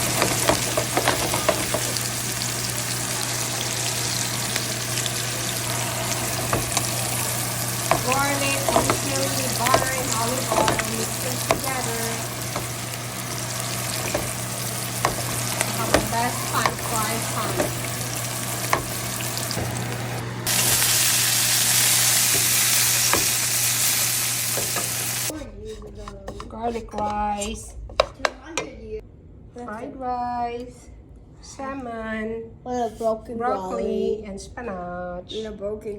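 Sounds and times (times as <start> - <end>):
low hum: 0.0 - 24.0
food sizzling in oil: 0.0 - 25.3.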